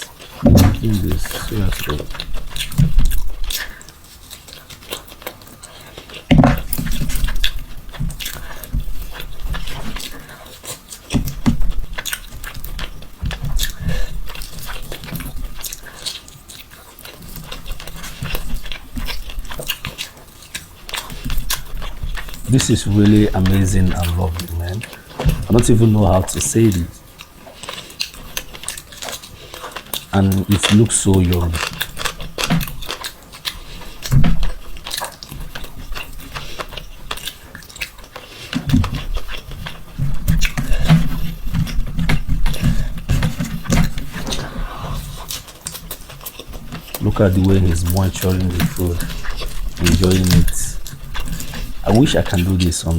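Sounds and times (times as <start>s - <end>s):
person chewing food: 0.0s - 52.9s
low thud: 0.5s - 1.0s.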